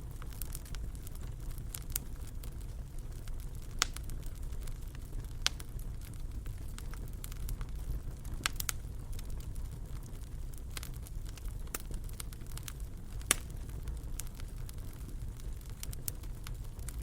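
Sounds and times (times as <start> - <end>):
low rumble of flames: 0.0 - 17.0
sharp wood fire pops: 0.0 - 17.0.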